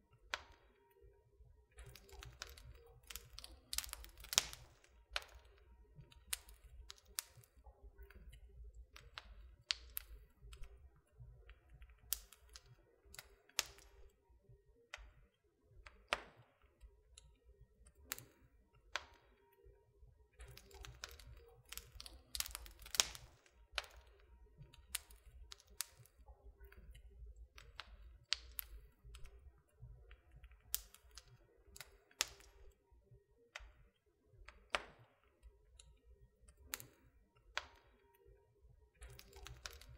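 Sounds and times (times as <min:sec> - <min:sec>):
wood fire crackling: 0:01.7 - 0:14.1, 0:15.8 - 0:19.2, 0:20.3 - 0:32.8, 0:35.7 - 0:37.8, 0:39.0 - 0:39.9.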